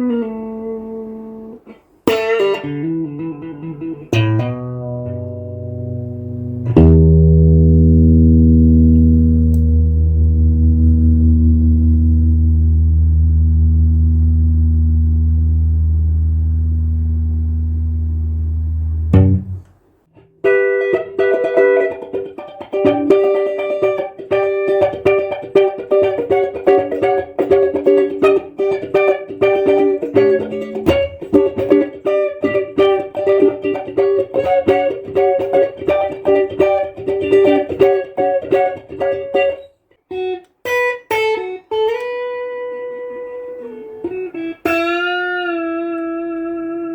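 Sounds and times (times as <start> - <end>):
electric guitar picked notes: 0.0 - 19.6, 20.2 - 46.9
steady low tone: 6.0 - 19.8.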